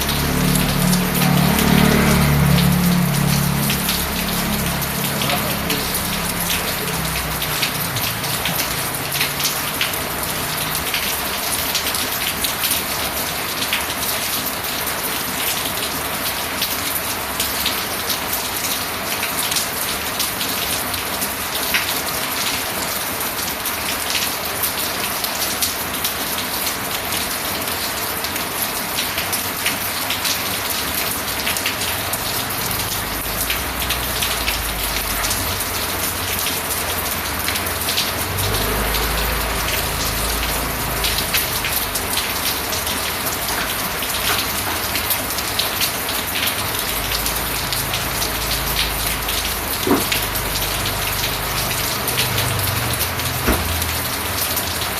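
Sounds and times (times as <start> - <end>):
rain on a hard surface: 0.0 - 54.9.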